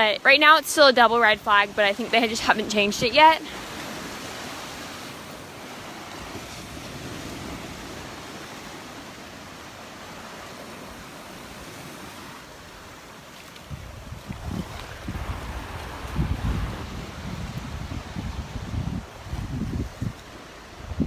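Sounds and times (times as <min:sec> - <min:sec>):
surf washing onto beach: 0:00.0 - 0:21.0
wind buffeting microphone: 0:01.0 - 0:08.8, 0:13.6 - 0:21.0.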